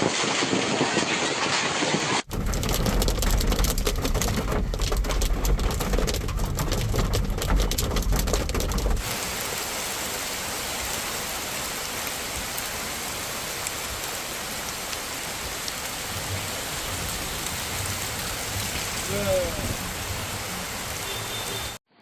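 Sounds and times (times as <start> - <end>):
hailstones clattering on hard surface: 0.0 - 9.1
heavy rain hissing: 8.6 - 21.8.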